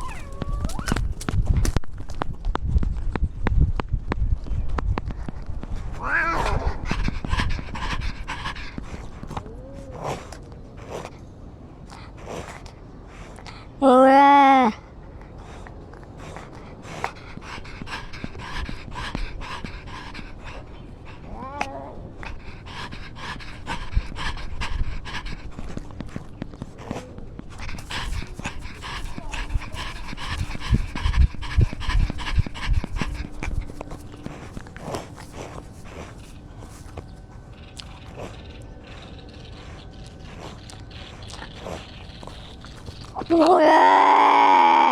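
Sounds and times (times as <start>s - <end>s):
cat high cry: 0.0s - 1.0s, 6.0s - 6.8s, 21.2s - 22.0s
cat panting: 0.0s - 1.1s, 4.8s - 13.8s, 14.6s - 43.4s.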